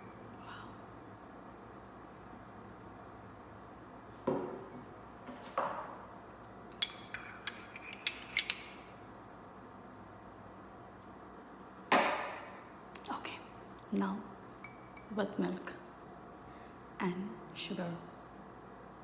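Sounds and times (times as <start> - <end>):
spoon clinking against cup: 6.8 - 8.9, 14.6 - 15.1.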